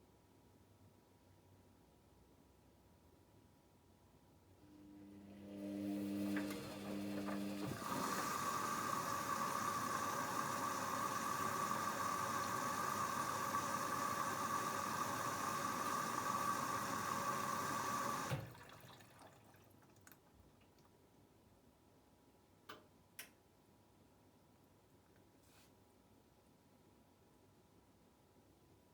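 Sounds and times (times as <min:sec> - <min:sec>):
washing machine low hum: 0:04.6 - 0:20.2
water rushing through inlet valve: 0:05.1 - 0:20.2.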